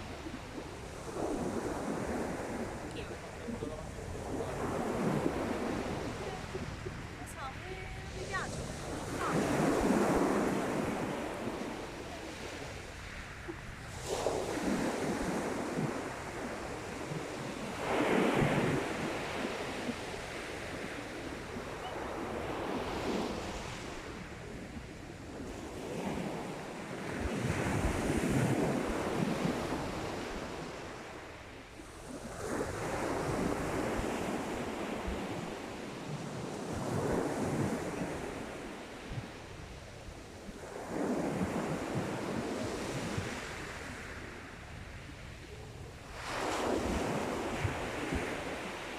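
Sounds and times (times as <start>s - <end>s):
sea waves breaking: 0.0s - 48.9s
wind buffeting microphone: 0.0s - 48.9s.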